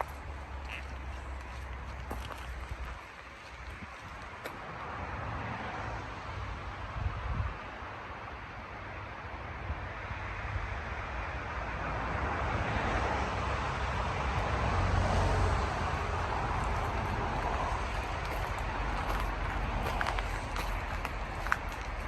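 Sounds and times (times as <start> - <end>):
road traffic: 0.0 - 22.0
vehicle passing: 14.5 - 22.0.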